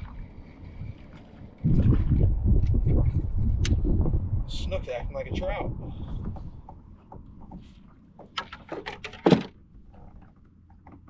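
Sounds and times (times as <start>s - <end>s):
clicks and knocks against kayak: 6.0s - 11.0s
thump on kayak: 8.3s - 9.6s.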